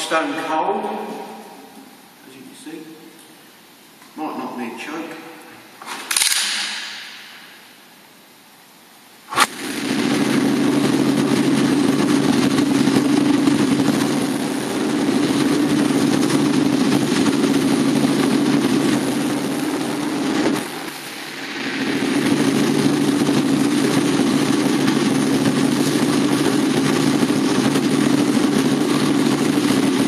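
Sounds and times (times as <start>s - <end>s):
sudden noise: 9.3s - 30.0s
motorcycle engine running: 9.4s - 21.0s, 21.8s - 30.0s.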